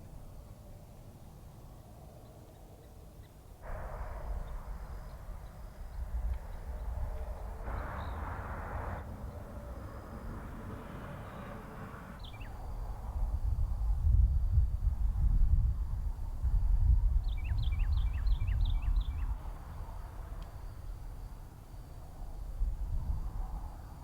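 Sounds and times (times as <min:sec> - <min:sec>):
wind gusting on microphone: 0:03.6 - 0:24.0
bird chirps: 0:12.2 - 0:12.6.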